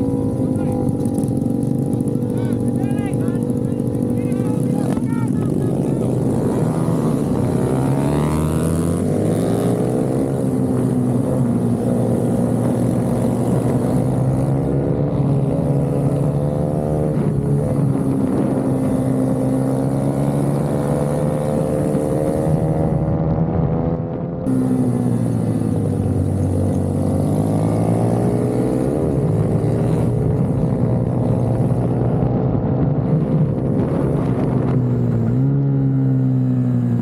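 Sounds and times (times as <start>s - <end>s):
minibike engine revving: 0.0s - 23.2s, 24.5s - 37.0s.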